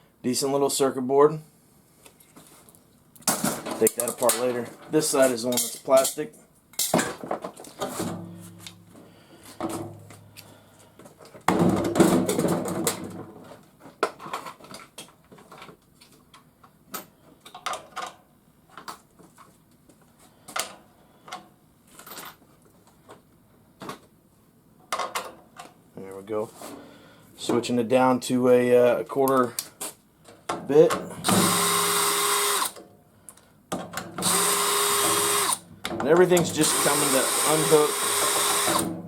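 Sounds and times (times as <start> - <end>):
cordless power driver spinning: 31.3 - 32.8, 34.2 - 35.6, 36.6 - 38.9.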